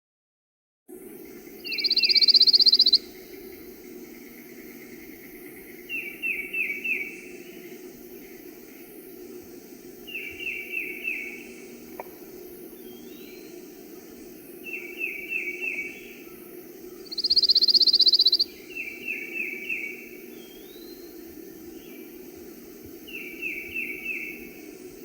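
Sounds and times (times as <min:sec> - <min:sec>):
woodland background noise: 0:00.9 - 0:25.0
bird trill: 0:01.6 - 0:03.1, 0:17.0 - 0:20.0.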